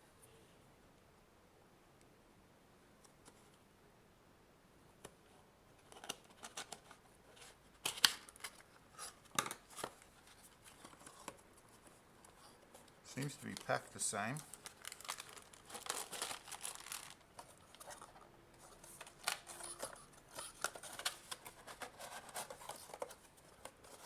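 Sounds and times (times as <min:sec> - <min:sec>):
packaging rustling: 0:13.1 - 0:24.0.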